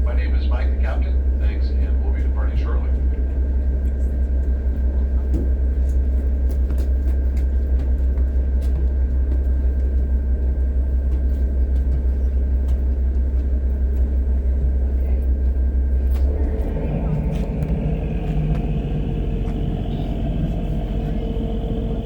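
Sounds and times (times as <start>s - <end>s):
boat engines rumbling: 0.0s - 22.0s
faint steady whine: 14.8s - 22.0s.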